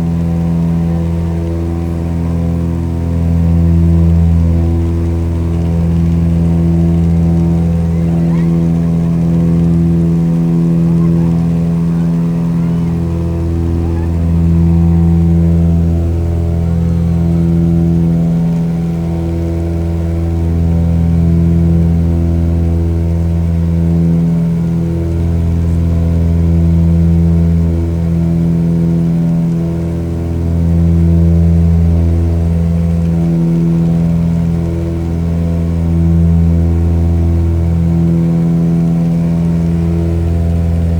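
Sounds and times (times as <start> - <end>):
engine droning steadily: 0.0 - 40.9.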